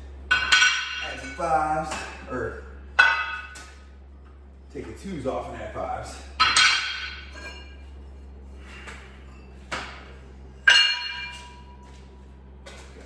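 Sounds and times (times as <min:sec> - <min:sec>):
metal weight plates clanking: 0:00.3 - 0:01.5, 0:06.4 - 0:07.9, 0:10.6 - 0:11.9.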